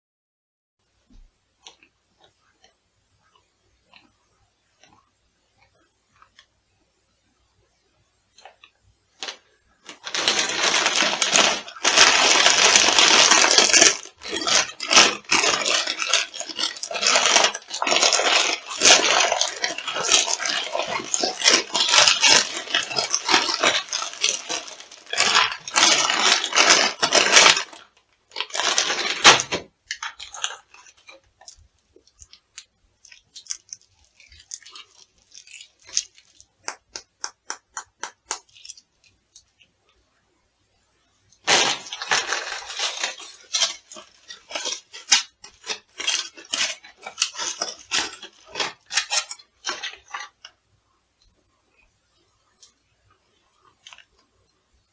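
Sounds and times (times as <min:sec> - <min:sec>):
crunchy food crushed underfoot: 0:09.2 - 0:38.8, 0:41.5 - 0:50.4.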